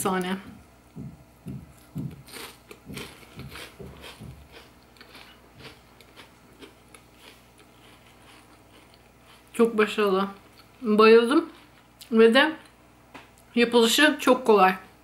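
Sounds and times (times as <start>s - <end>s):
person chewing crispy pastry: 1.8s - 9.8s.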